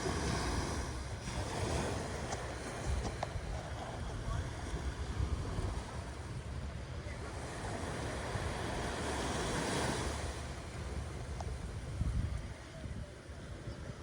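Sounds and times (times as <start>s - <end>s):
ocean surf washing on shore: 0.0s - 14.0s
wind rumbling on microphone: 0.0s - 14.0s.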